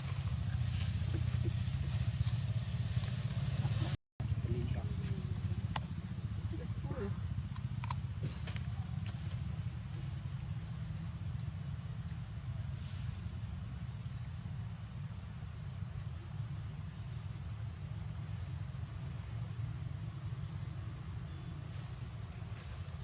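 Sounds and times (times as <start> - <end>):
low rumble: 0.0 - 11.5.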